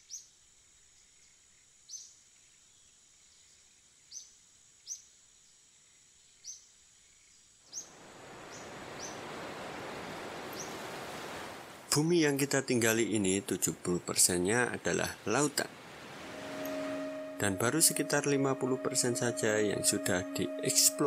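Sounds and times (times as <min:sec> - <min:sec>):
steady rushing noise: 0:15.6 - 0:16.9
faint steady high tone: 0:16.1 - 0:21.0.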